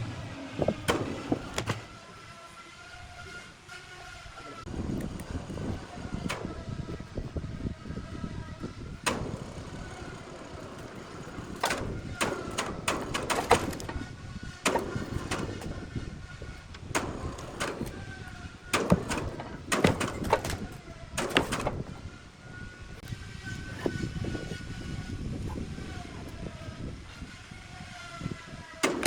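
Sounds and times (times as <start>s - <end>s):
heavy knocks and clanks: 0.0s - 2.1s, 8.7s - 22.2s.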